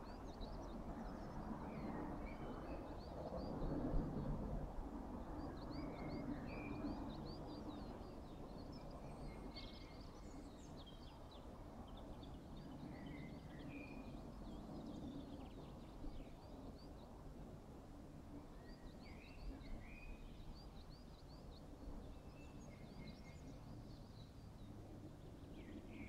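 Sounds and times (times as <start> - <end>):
songbirds chirping: 18.5 - 26.0.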